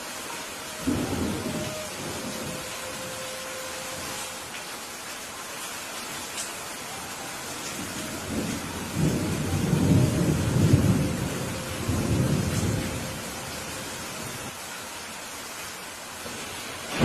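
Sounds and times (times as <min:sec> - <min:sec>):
rain hissing: 0:00.0 - 0:17.0
thunder rumbling: 0:00.8 - 0:04.3, 0:07.6 - 0:14.5, 0:16.3 - 0:17.0.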